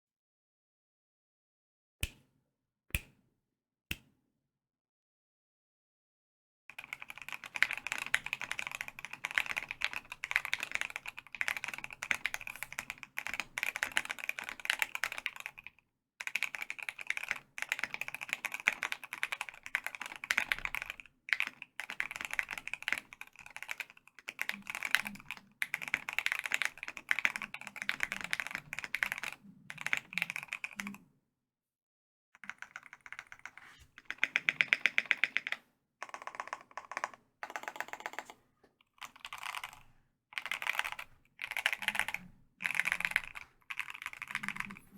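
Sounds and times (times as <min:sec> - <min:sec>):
mechanical keyboard typing: 0:06.7 - 0:31.0, 0:32.4 - 0:39.8, 0:40.4 - 0:44.9.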